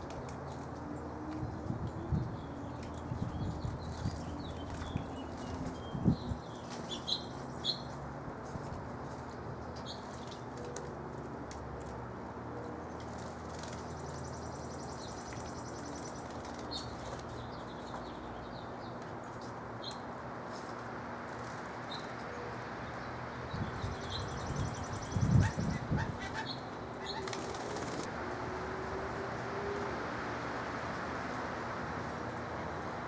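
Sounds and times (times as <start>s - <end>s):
songbirds chirping: 0.0s - 33.0s
wing flutters: 25.0s - 28.1s.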